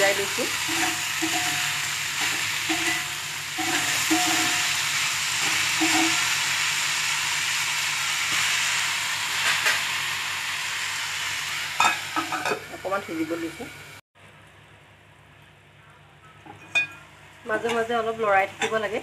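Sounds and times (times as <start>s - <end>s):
vegetables sizzling in hot oil: 0.0s - 14.0s
spatula scraping pan: 0.6s - 6.4s.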